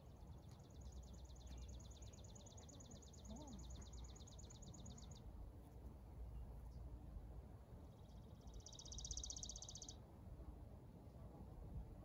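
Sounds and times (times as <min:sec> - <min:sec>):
faint songbird trill: 0:00.0 - 0:05.3, 0:07.9 - 0:10.0.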